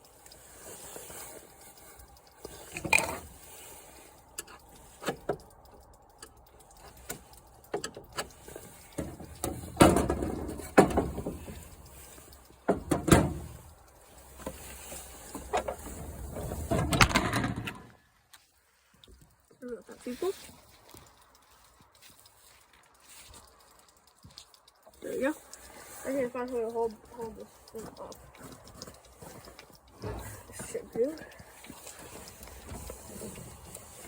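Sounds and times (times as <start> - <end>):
rustling: 0.0 - 34.0.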